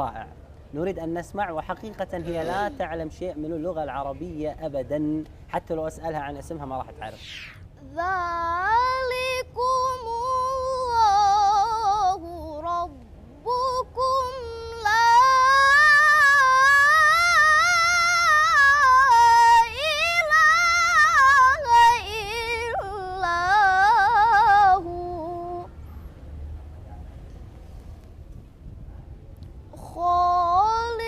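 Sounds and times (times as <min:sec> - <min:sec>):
girl reciting melodically: 0:00.1 - 0:04.6, 0:07.0 - 0:25.8, 0:29.7 - 0:31.0.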